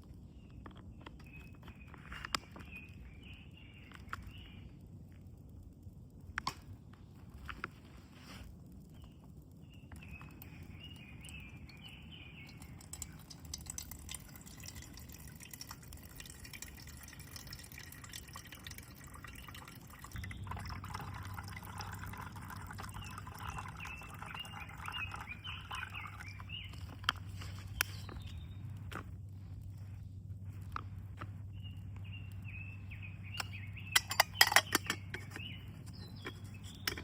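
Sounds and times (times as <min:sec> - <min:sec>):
water trickling and dripping: 0:09.9 - 0:28.9.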